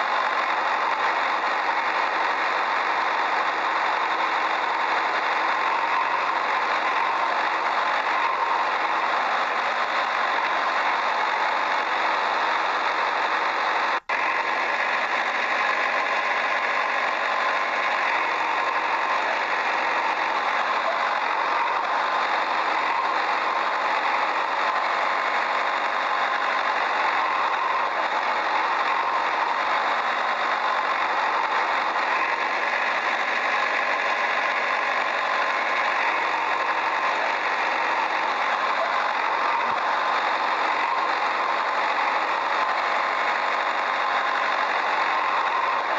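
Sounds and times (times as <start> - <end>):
tractor engine with rattling knock: 0.0 - 45.9.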